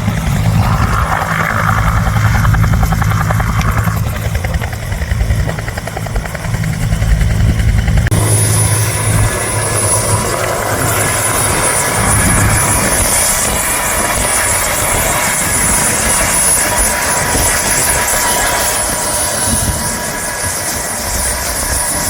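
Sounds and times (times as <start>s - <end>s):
high steady whine: 0.0s - 15.0s
helicopter engine noise: 0.0s - 22.0s
helicopter main rotor beat: 0.0s - 22.0s.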